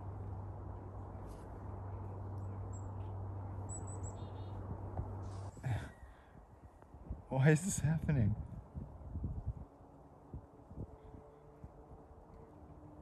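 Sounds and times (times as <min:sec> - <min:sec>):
high thin bird chirps: 0:02.6 - 0:04.6.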